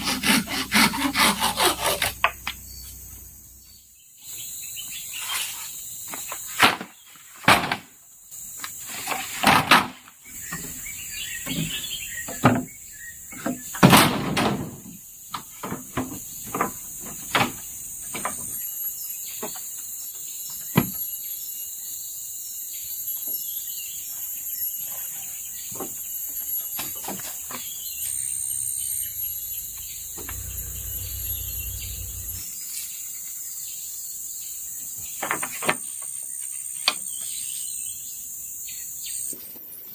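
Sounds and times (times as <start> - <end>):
high insect drone: 0.2 - 6.6, 14.7 - 35.1.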